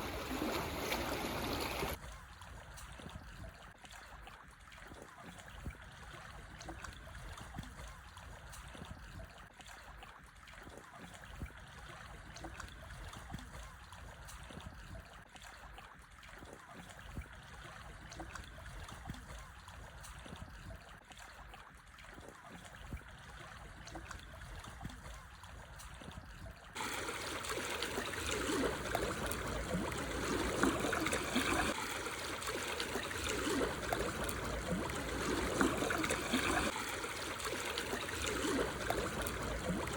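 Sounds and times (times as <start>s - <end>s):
waves lapping over stones: 0.0s - 2.0s, 26.8s - 39.9s.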